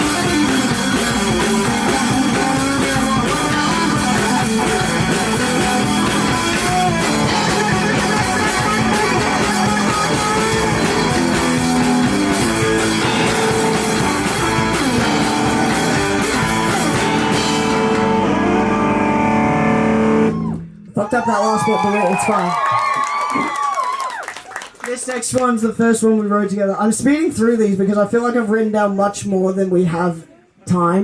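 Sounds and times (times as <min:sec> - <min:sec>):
guitar chord ringing: 0:00.0 - 0:20.9
live rock band playing: 0:00.0 - 0:20.9.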